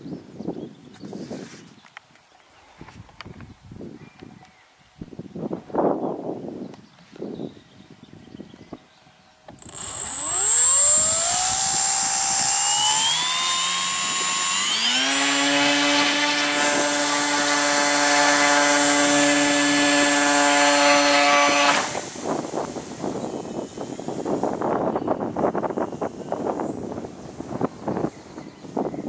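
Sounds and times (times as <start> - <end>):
electric motor and propeller whining: 9.5 - 28.9
high steady whistle: 9.6 - 15.1.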